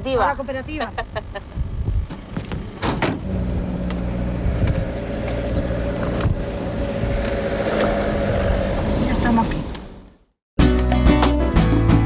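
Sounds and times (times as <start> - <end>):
vehicle engine running: 0.7 - 9.4.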